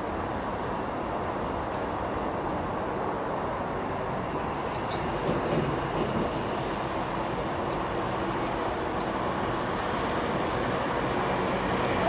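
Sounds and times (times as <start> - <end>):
train running on rails: 0.0 - 12.0.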